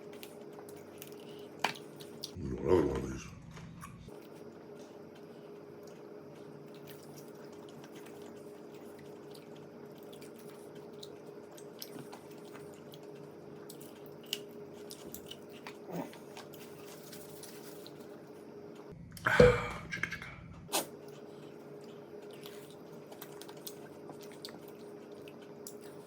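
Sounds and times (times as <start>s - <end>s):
low hum: 2.4s - 4.2s, 18.9s - 20.7s
man chewing: 3.4s - 18.3s, 19.2s - 26.0s.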